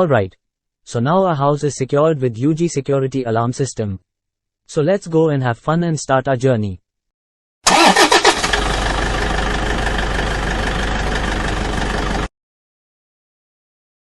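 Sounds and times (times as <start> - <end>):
car starter cranking: 7.7 - 10.0
car engine running: 7.7 - 12.3.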